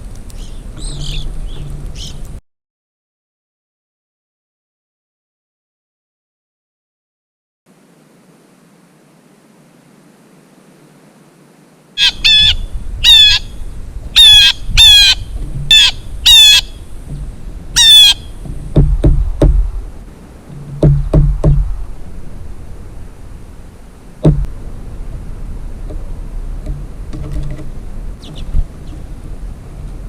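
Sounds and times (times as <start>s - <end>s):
low rumbling: 0.0s - 2.4s, 12.1s - 30.0s
bird harsh calls: 0.4s - 2.3s, 12.0s - 18.6s
sharp thumps: 15.3s - 16.2s, 17.0s - 17.6s, 18.3s - 22.0s, 24.2s - 24.6s, 25.8s - 28.7s.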